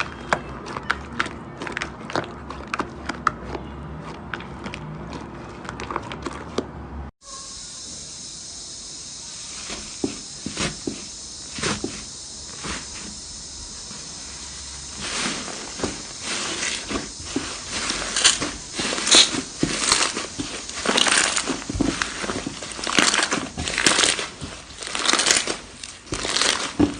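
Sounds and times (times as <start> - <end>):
sticky clicks and crackles: 0.0 - 6.7, 15.6 - 26.9
steady hiss: 7.2 - 26.9
slime squeezed by hand: 15.0 - 26.9.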